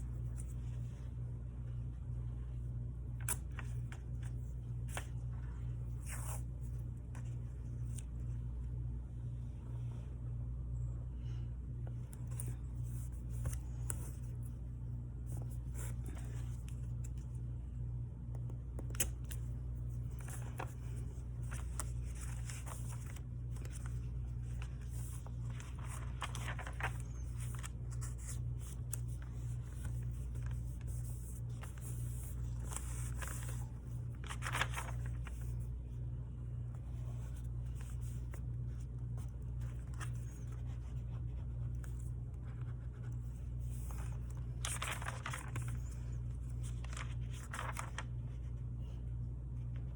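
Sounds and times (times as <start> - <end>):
steady low hum: 0.0 - 49.9
paper rustling and scraping: 3.1 - 8.5, 18.9 - 35.8, 36.7 - 48.6.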